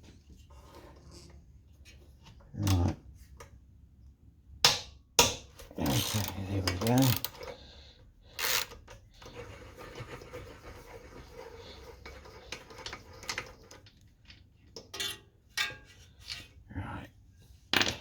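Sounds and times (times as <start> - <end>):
metal parts scraping and clicking: 5.8 - 7.6, 8.4 - 9.4.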